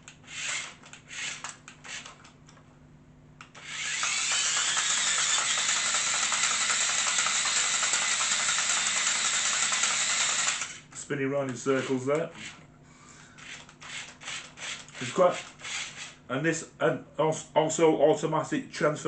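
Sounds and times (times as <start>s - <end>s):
toy robot motors whirring: 0.1s - 2.3s, 3.4s - 10.9s, 11.7s - 12.6s, 13.4s - 16.2s.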